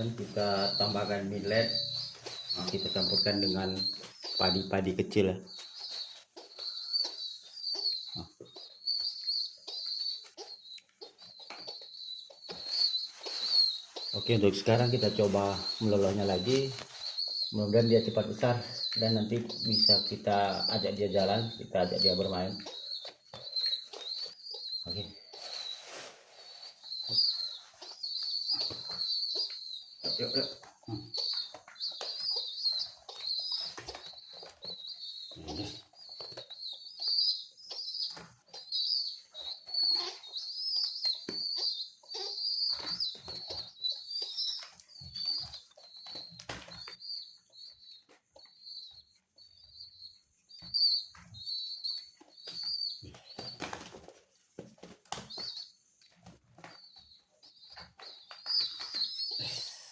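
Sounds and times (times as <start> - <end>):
pigeon squab begging peeps: 0.0 - 50.0
wing-flapping and scuffling: 52.2 - 59.2.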